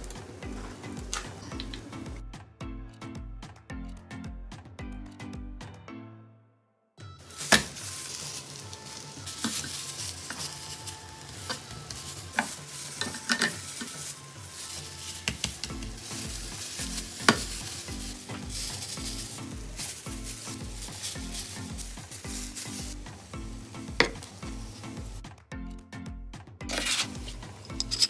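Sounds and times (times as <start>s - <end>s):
food sizzling in a pan: 0.0s - 2.2s, 7.2s - 25.2s, 26.7s - 28.0s
background music with bass beat: 0.0s - 6.0s, 7.0s - 28.0s.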